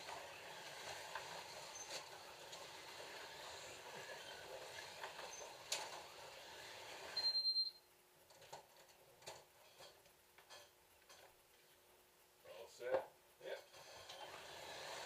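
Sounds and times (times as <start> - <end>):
slot cars whirring: 0.0 - 7.4, 13.8 - 15.0.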